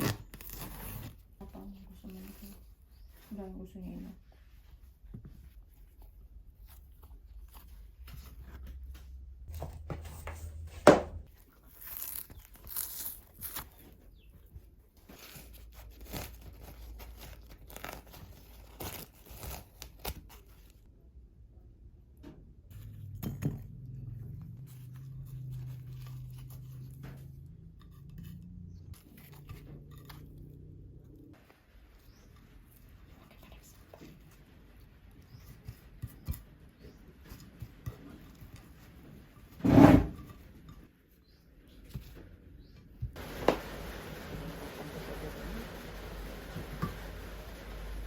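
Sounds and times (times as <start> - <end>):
objects being handled: 0.0 - 20.9, 22.2 - 44.4.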